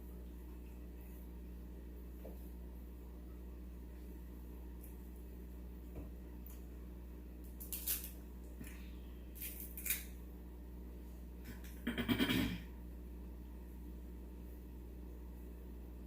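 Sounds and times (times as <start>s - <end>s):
crab shells cracking: 7.4s - 8.2s, 9.4s - 10.1s.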